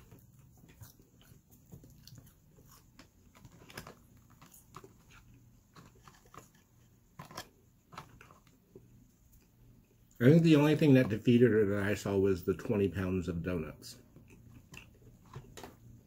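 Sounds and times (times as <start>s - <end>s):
person chewing: 0.0s - 10.2s, 14.1s - 15.5s.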